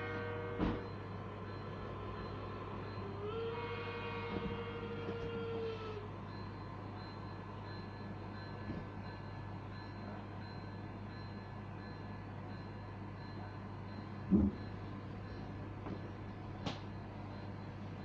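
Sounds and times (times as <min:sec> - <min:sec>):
model train horn blast: 0:00.0 - 0:00.8, 0:03.3 - 0:05.8.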